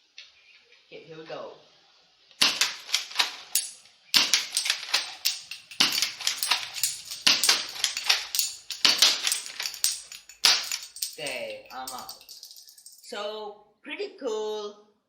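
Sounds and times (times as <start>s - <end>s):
toy rifle firing and bolt clacks: 2.4s - 3.6s.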